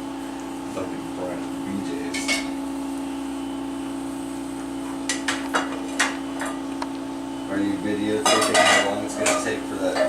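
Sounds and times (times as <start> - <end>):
clinks on a dish: 8.2 - 10.0.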